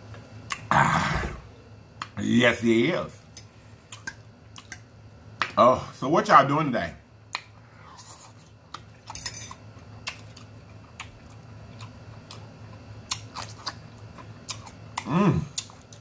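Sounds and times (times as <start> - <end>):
chewing with wet mouth clicks: 0.5 - 0.7, 3.3 - 5.6, 7.3 - 7.6, 8.2 - 16.0.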